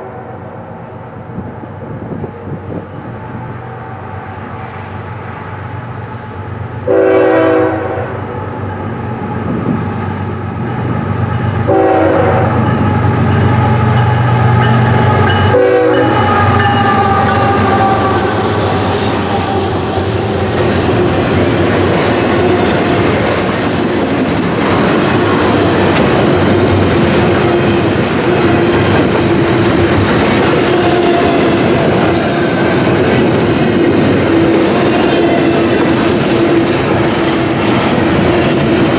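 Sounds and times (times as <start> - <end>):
locomotive engine drone: 0.0 - 38.9
rail cars rumbling and clattering: 0.0 - 38.9
train horn blasts: 6.8 - 8.5, 11.6 - 23.5, 30.5 - 32.8.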